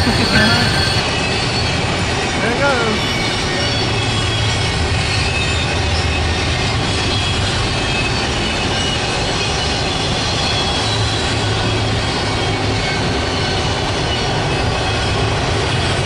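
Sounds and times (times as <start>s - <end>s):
train rumbling: 0.0s - 1.0s.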